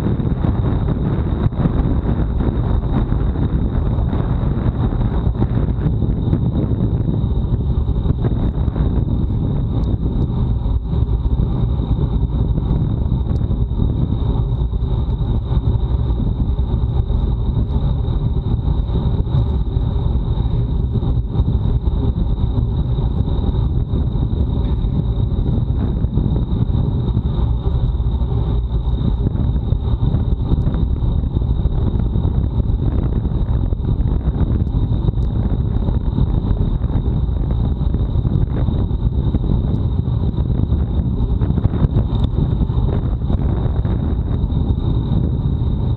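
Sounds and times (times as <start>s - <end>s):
high-pitched whine: 0.0s - 45.9s
wind buffeting microphone: 0.0s - 45.9s.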